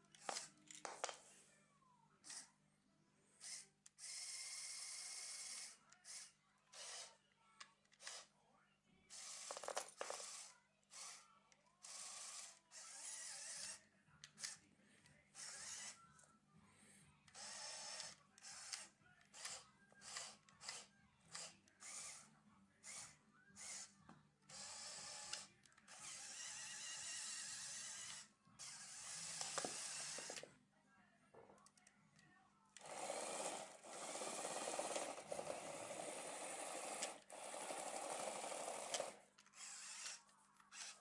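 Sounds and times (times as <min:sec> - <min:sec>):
small electric motors whirring: 0:00.1 - 0:01.1, 0:02.2 - 0:02.5, 0:03.4 - 0:07.2, 0:08.0 - 0:08.3, 0:09.1 - 0:13.8, 0:14.4 - 0:14.6, 0:15.4 - 0:16.0, 0:17.3 - 0:30.4, 0:32.8 - 0:41.0.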